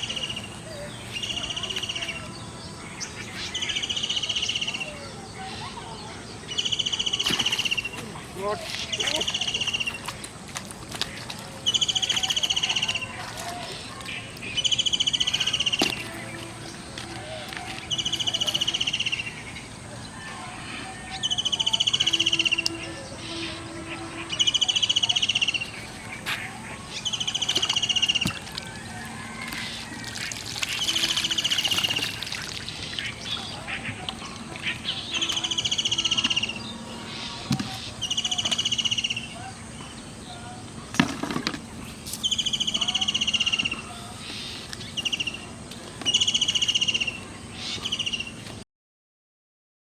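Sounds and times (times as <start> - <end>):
bird trilling: 14.5 - 40.6.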